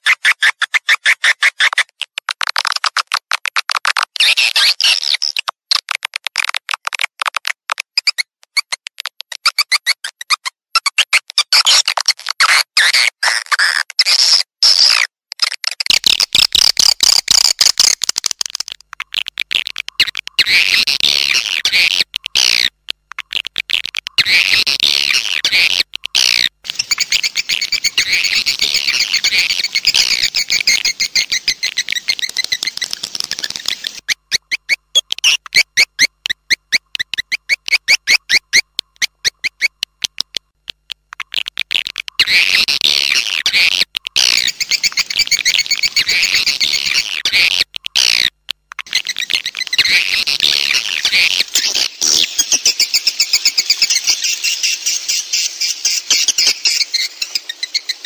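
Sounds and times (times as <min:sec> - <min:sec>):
swiftlet twittering chirps: 0:26.6 - 0:39.7, 0:43.0 - 0:48.1, 0:48.8 - 0:58.0.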